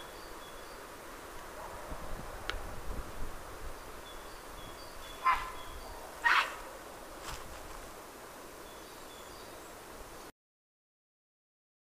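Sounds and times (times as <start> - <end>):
short harsh bird calls: 5.0 - 6.6.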